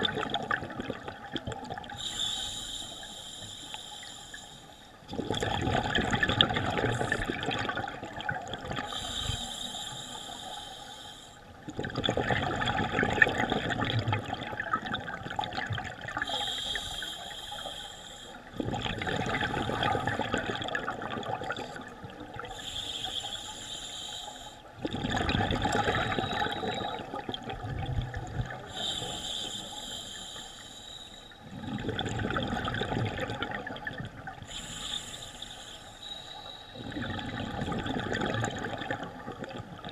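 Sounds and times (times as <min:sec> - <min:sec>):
exhaled bubbles rushing underwater: 0:00.0 - 0:02.1, 0:05.1 - 0:09.2, 0:11.6 - 0:16.7, 0:18.4 - 0:23.3, 0:24.7 - 0:29.3, 0:31.4 - 0:34.7, 0:36.0 - 0:39.9
regulator hiss: 0:02.0 - 0:04.9, 0:16.3 - 0:18.4, 0:28.8 - 0:31.4, 0:34.5 - 0:36.8.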